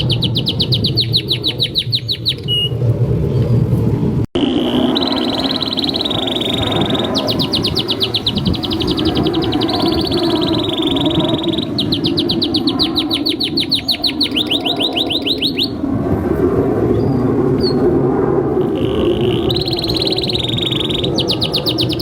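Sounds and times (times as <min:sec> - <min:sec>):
canary singing: 0:00.0 - 0:02.8, 0:04.4 - 0:15.8, 0:18.6 - 0:22.0.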